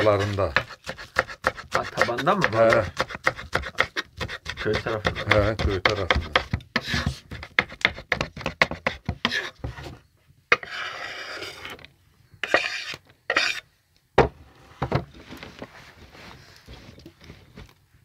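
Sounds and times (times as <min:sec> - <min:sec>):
short scraping sounds: 0:09.2 - 0:11.8, 0:12.4 - 0:13.6.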